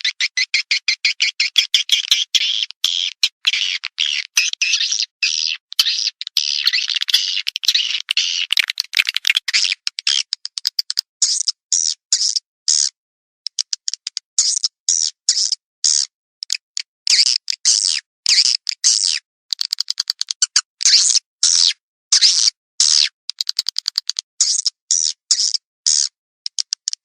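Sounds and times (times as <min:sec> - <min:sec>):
high buzzy twittering chirps: 0:00.0 - 0:10.2
dry clicks: 0:06.2 - 0:11.1, 0:13.5 - 0:14.2, 0:19.5 - 0:20.6, 0:23.3 - 0:24.2, 0:26.5 - 0:27.0.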